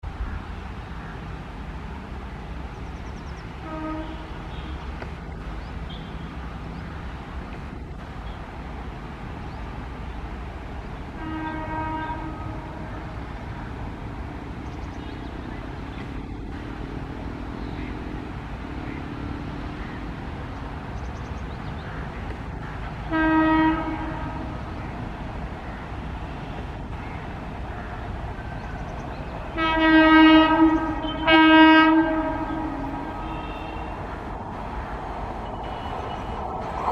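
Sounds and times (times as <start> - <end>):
locomotive horn blasts: 3.6 - 4.9, 11.2 - 13.3, 23.0 - 24.8, 29.5 - 36.9
steady low rumble: 31.8 - 36.9.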